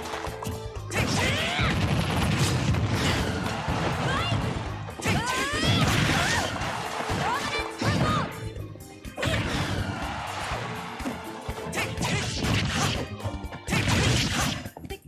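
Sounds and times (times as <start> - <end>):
percussive hits: 0.1 - 8.5.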